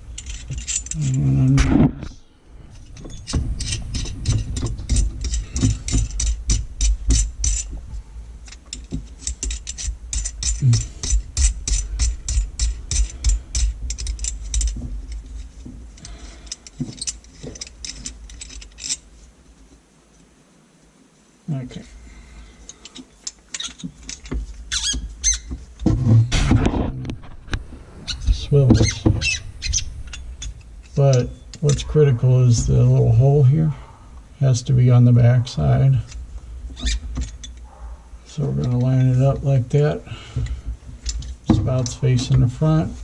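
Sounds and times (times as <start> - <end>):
metal parts clinking: 0.0 - 1.6, 2.7 - 19.2, 22.7 - 25.8, 28.1 - 32.0, 36.0 - 43.0.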